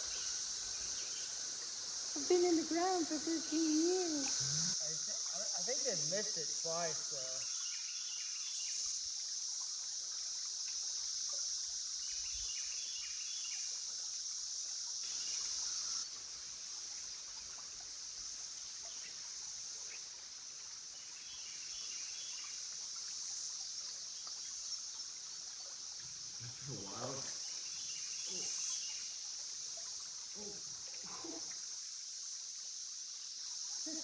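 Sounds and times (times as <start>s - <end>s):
cicadas droning: 0.0s - 34.0s.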